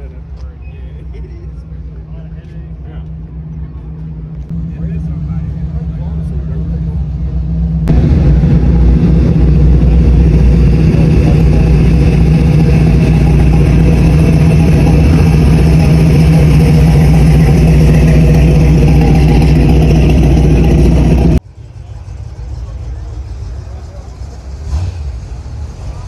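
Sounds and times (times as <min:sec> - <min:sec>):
car engine running: 0:04.4 - 0:21.4.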